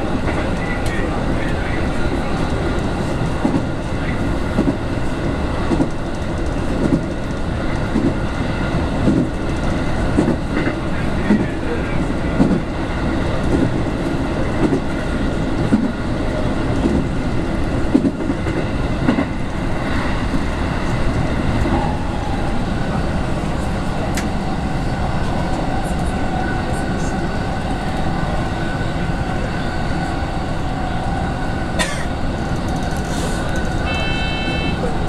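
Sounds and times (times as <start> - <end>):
train wheels rumbling: 0.0 - 35.0.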